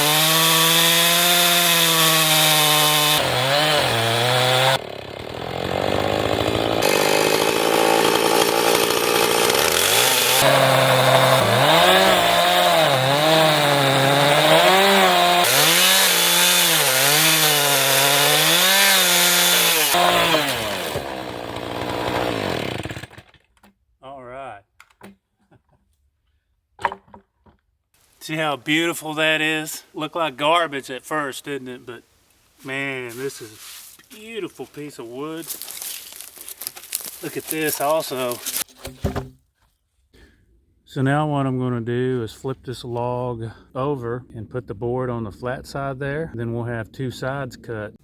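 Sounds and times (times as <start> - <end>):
chainsaw cutting through log: 0.0 - 23.4, 32.6 - 38.7.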